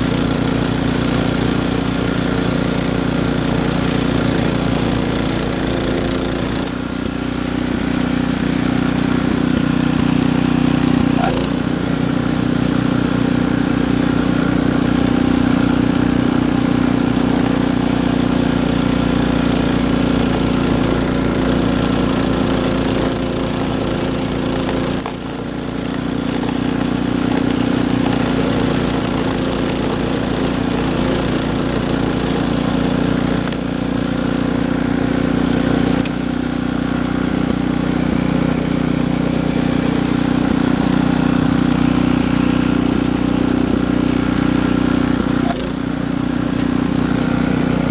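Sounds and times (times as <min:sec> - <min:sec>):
snowblower engine running: 0:00.0 - 0:47.9.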